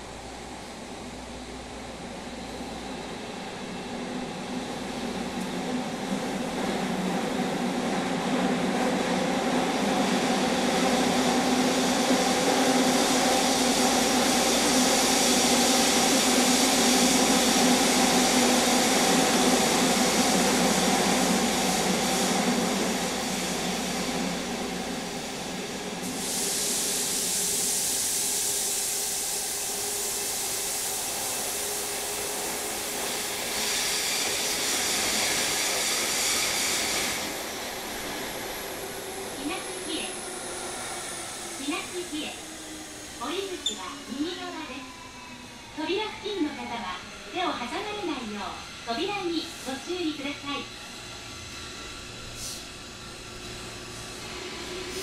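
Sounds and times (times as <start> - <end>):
train running noise: 0.0 - 55.0
high hiss: 10.3 - 44.2, 50.9 - 55.0.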